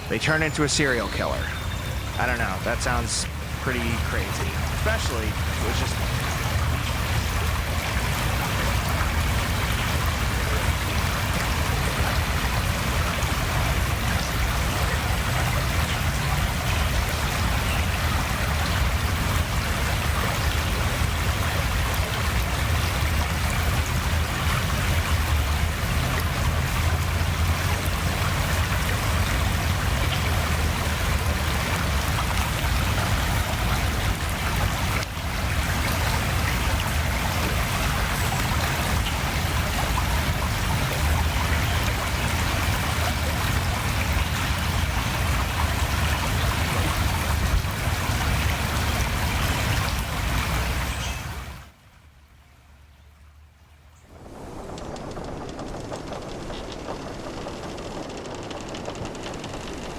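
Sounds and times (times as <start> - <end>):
rushing water: 0.0 - 59.9
low rumble: 54.0 - 59.9.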